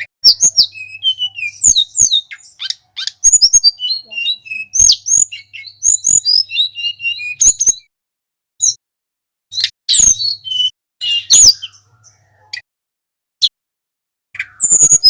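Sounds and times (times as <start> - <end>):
songbird singing: 0.0 - 7.9, 9.5 - 12.7, 14.4 - 15.0.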